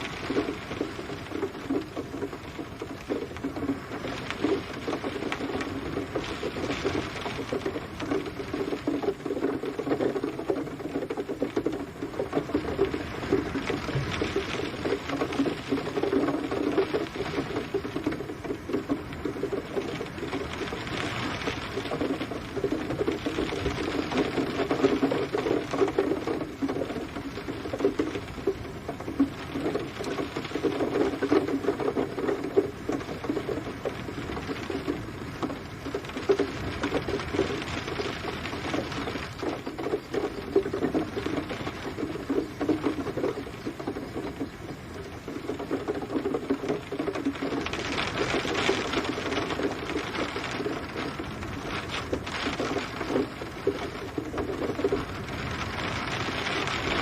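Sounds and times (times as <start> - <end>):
rain pattering: 0.0 - 57.0.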